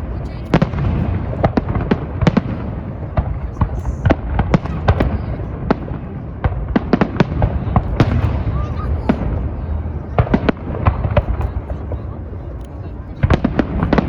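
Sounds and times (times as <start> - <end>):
fireworks bangs and cracks: 0.0 - 14.0
steady low rumble: 0.0 - 14.0.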